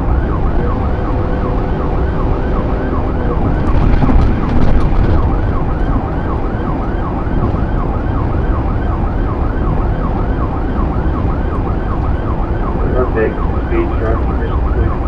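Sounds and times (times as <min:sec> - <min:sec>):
car engine and road noise: 0:00.0 - 0:15.0
police siren yelping: 0:00.0 - 0:15.0.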